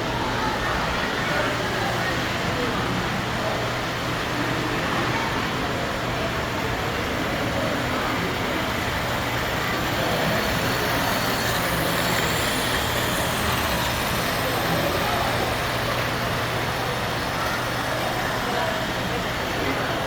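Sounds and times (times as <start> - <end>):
model trains rumbling: 0.0 - 20.0.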